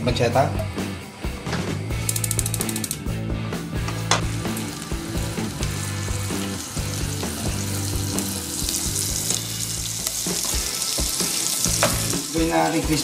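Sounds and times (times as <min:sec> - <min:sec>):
low background music: 0:00.0 - 0:13.0
meat sizzling in a frying pan: 0:03.9 - 0:13.0.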